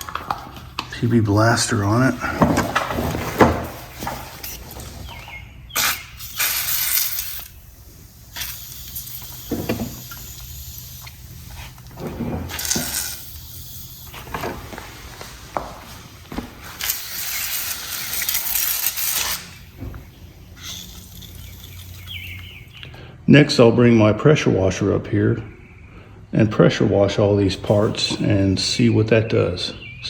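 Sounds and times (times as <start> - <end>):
aerosol can spraying: 5.8 - 15.0, 16.6 - 19.7, 20.5 - 22.6.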